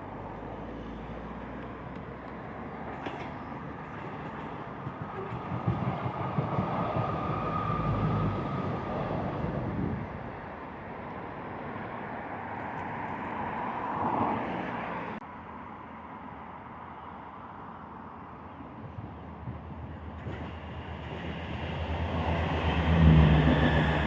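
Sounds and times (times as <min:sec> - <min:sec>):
train rumbling past: 0:00.2 - 0:11.9, 0:18.6 - 0:24.0.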